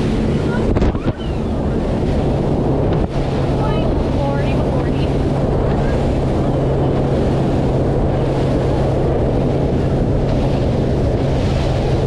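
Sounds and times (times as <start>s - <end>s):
boat motor droning: 0.0s - 12.0s
wind buffeting microphone: 0.0s - 12.0s.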